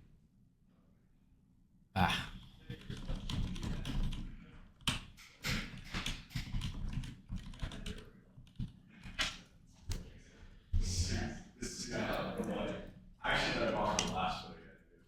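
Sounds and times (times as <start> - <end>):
typing on computer keyboard: 2.8 - 4.3, 5.7 - 8.7.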